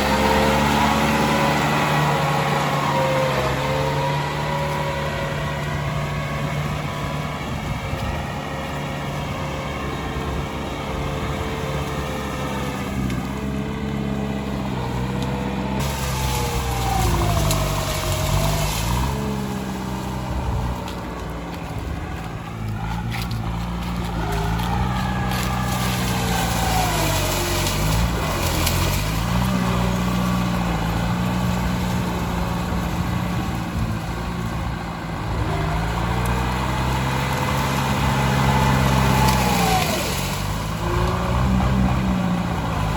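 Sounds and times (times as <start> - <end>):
tractor engine under load: 0.0 - 42.9
rough crackling noise: 14.7 - 42.9.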